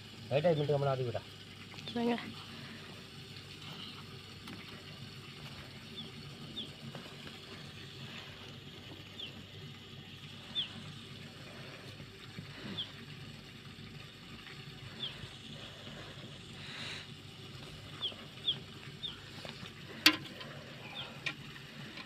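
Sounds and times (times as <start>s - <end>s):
small bird chirping: 5.9s - 6.8s, 9.1s - 9.5s, 10.4s - 10.9s, 14.9s - 15.4s, 17.9s - 19.4s.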